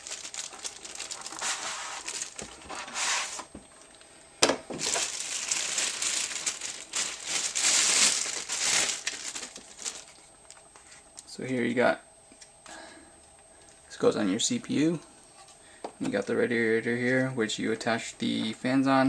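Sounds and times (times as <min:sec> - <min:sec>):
packaging rustling: 0:00.0 - 0:04.0, 0:04.7 - 0:11.0.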